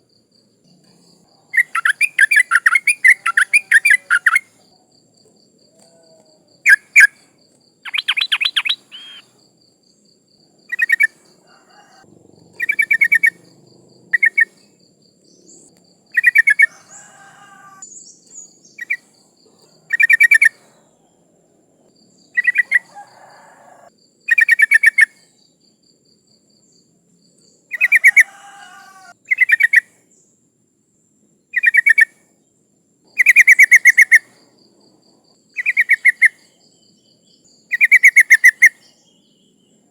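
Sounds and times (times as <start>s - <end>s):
bird chattering calls: 1.5s - 4.4s, 7.8s - 9.3s, 10.7s - 14.6s, 16.2s - 17.8s, 22.4s - 25.0s.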